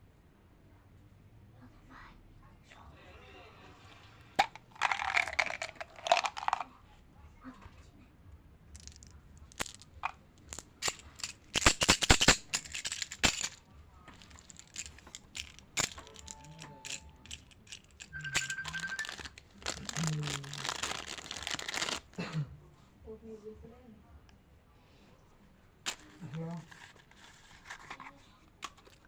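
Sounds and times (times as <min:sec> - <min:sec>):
plastic wrappers crinkling: 0:04.4 - 0:06.6, 0:08.8 - 0:22.2
wrapped candies clattering: 0:04.4 - 0:06.7, 0:08.8 - 0:22.2.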